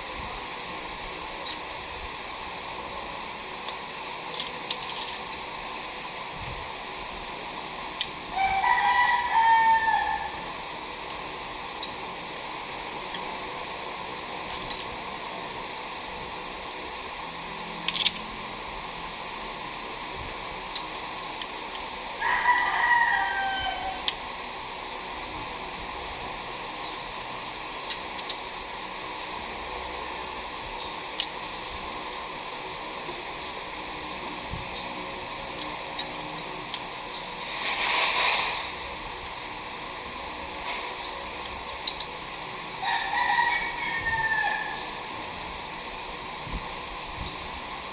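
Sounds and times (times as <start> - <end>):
steady background hiss: 0.0 - 47.9
rooster crowing: 8.3 - 10.6, 22.2 - 24.2, 42.8 - 45.1.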